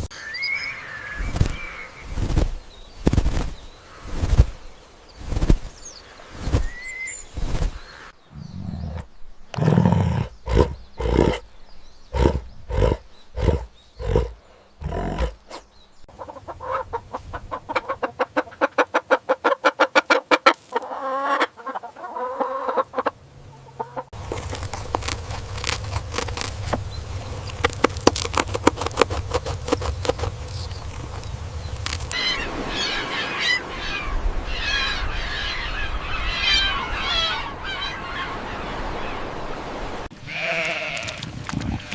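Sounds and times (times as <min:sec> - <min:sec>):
chickens clucking: 0:12.2 - 0:33.8.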